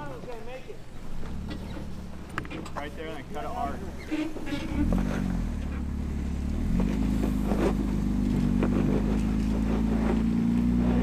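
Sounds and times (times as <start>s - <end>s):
engine revving under load: 1.2s - 11.0s
short knocks or scrapes: 3.9s - 5.9s, 6.6s - 10.6s.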